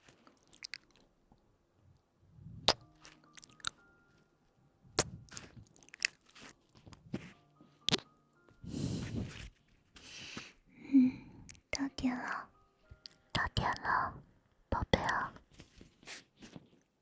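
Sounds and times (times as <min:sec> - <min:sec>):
close-miked clicks and crackles: 0:00.0 - 0:01.4.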